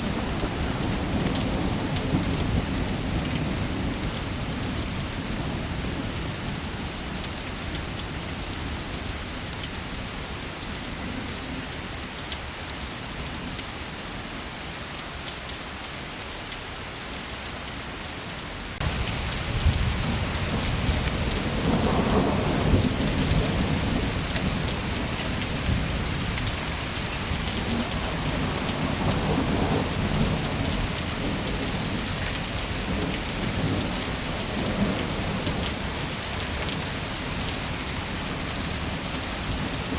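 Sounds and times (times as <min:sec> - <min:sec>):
low thunder rumbling: 0:00.0 - 0:07.1, 0:18.8 - 0:39.9
heavy rain: 0:00.0 - 0:39.9.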